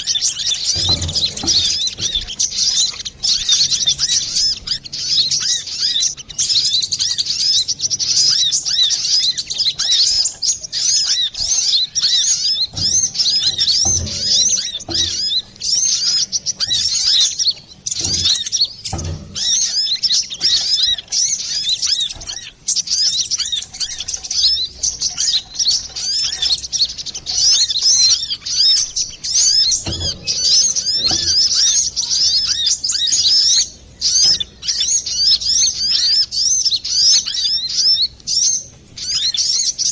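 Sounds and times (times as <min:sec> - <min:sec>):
bird twittering chirps: 0:00.0 - 0:39.9
low thumps: 0:00.2 - 0:04.7, 0:11.3 - 0:21.2, 0:25.8 - 0:32.6.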